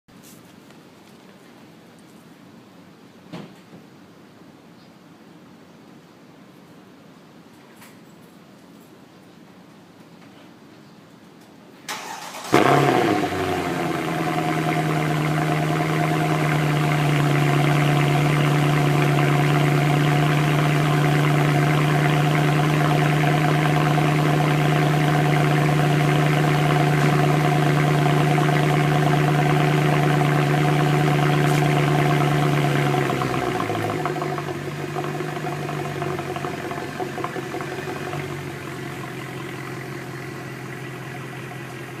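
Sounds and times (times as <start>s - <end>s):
car engine cold start fast idle: 11.9s - 42.0s.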